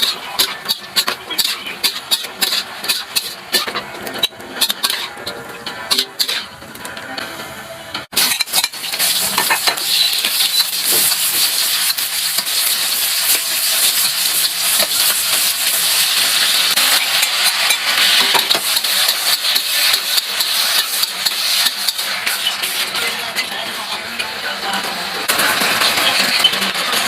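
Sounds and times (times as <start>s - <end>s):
vegetables sizzling in hot pan: 0.0s - 3.8s, 8.2s - 24.0s, 25.2s - 27.0s
utensil scraping pan: 0.0s - 6.6s, 8.2s - 15.8s.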